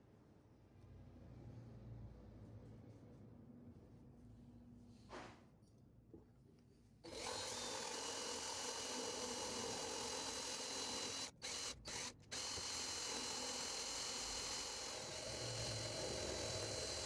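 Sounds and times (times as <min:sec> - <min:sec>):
power tool high whine: 0:07.1 - 0:17.0.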